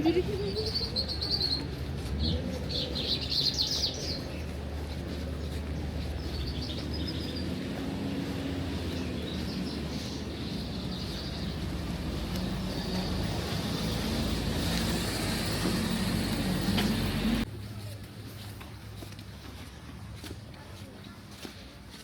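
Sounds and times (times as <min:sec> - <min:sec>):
small birds chirping: 0:00.2 - 0:14.3.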